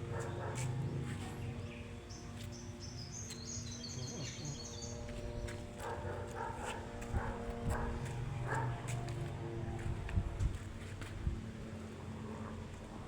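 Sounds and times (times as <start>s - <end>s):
low background hum: 0.0s - 13.0s
small bird chirping: 1.4s - 5.2s.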